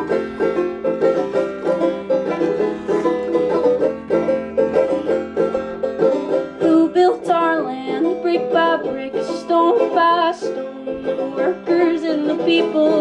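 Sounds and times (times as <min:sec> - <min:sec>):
plucked strings: 0:00.0 - 0:13.0
rapidly picked banjo: 0:00.0 - 0:13.0.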